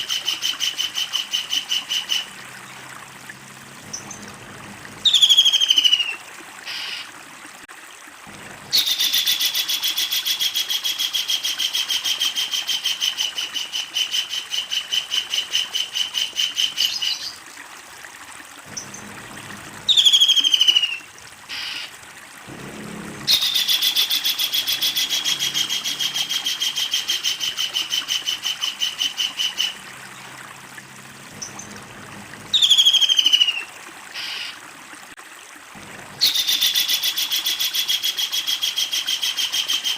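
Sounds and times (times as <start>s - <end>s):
kingfisher rattling call: 23.3s - 29.8s.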